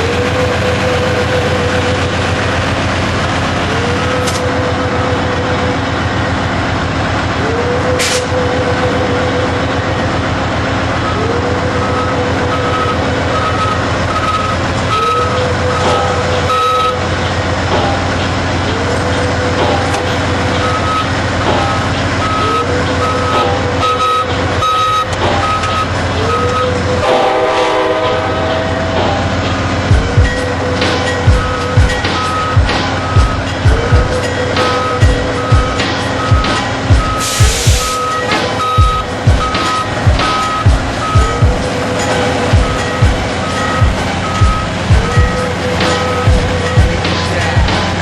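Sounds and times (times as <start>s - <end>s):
train running rumble: 0.0s - 48.0s
quick beeps: 11.8s - 17.1s, 19.8s - 27.0s, 30.1s - 47.6s.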